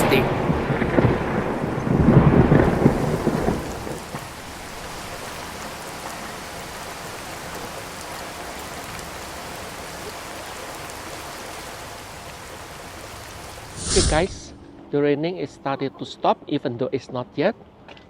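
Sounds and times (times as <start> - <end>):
hail and rain pelting a car: 0.0 - 13.6.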